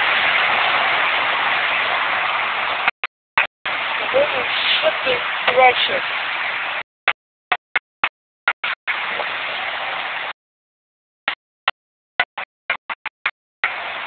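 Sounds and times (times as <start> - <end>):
heavy rain hissing: 0.0 - 2.9, 3.7 - 6.8, 8.9 - 10.3, 13.6 - 14.0.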